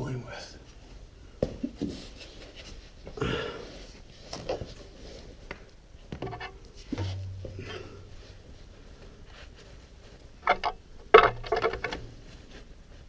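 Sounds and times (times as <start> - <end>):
tools and parts knocking: 6.1 - 7.6, 10.4 - 12.1
low hum: 6.3 - 9.3.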